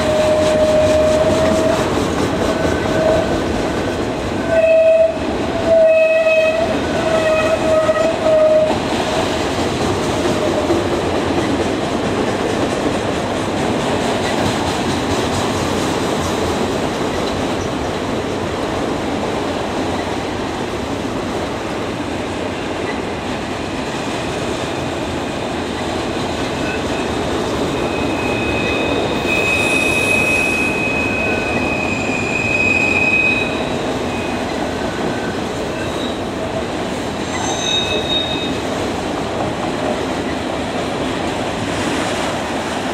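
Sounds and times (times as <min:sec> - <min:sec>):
train horn: 0:00.0 - 0:03.4, 0:04.4 - 0:08.8
train wheels rumbling on rails: 0:00.0 - 0:42.9
high wheel squeal: 0:27.7 - 0:36.2, 0:37.3 - 0:38.6.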